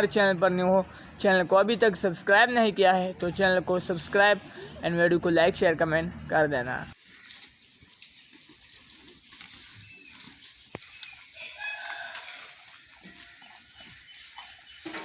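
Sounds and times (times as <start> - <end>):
high-pitched background hiss: 0.0 - 8.7
rooster crowing: 11.4 - 13.7.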